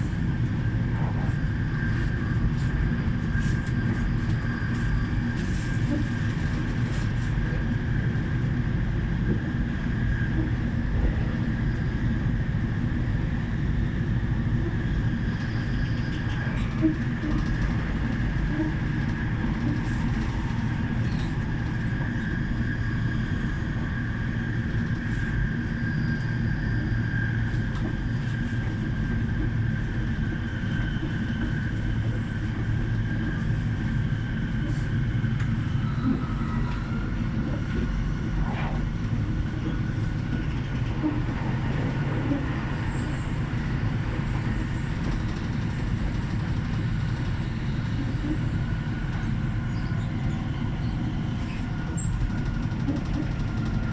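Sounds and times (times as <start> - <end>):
electric train rumble and whine: 0.0 - 53.9.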